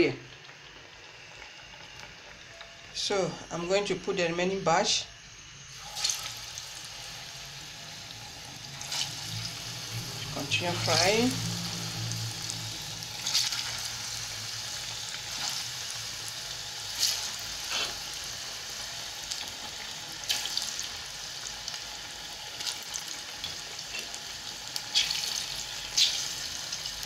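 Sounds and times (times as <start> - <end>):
oil sizzling: 0.0 - 27.0
oil popping and crackling: 8.7 - 18.3, 19.2 - 27.0.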